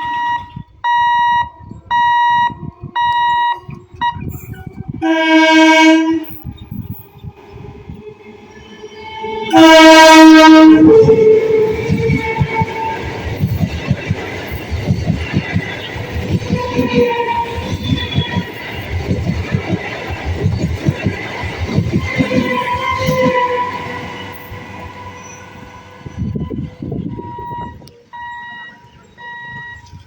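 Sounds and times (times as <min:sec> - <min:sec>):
train horn blast: 0:03.3 - 0:06.5, 0:09.4 - 0:13.1, 0:22.2 - 0:27.8
train wheels clattering: 0:11.0 - 0:24.8.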